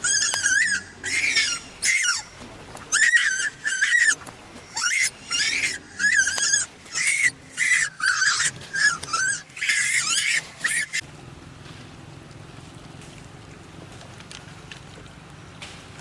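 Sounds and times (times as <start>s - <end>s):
baby monkey crying: 0.0s - 11.0s.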